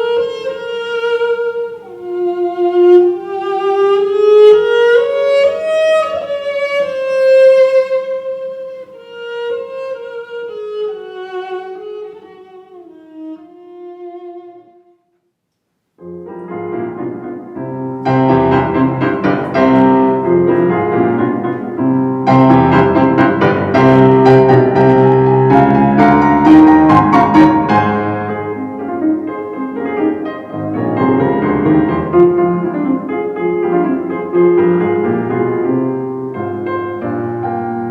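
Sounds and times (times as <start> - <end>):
solo violin melody: 0.0 - 15.0, 17.0 - 37.9
piano passage: 16.0 - 37.9.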